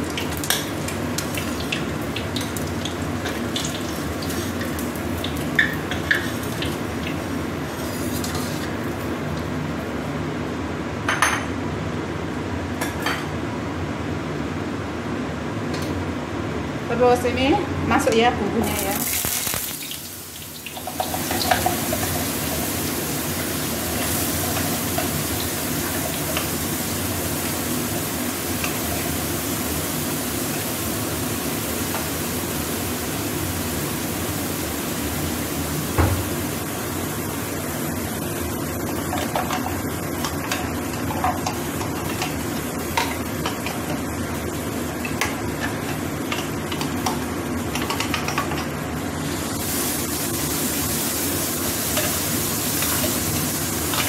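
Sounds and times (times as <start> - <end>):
spice paste sizzling in oil: 0.0 - 9.6, 18.6 - 54.0
knock: 36.0 - 36.2.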